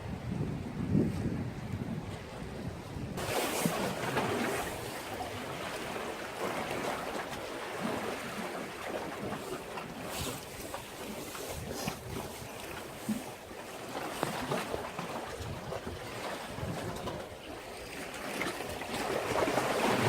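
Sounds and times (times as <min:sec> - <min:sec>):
wind buffeting microphone: 0:00.0 - 0:06.0, 0:10.0 - 0:13.4, 0:14.2 - 0:17.4
sea waves breaking: 0:00.0 - 0:20.0.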